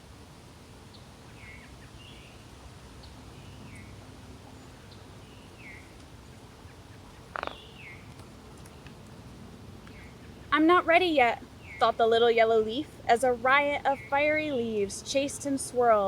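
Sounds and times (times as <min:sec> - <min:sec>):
low background noise: 0:00.0 - 0:16.0
birds chirping: 0:03.0 - 0:09.0, 0:09.8 - 0:16.0.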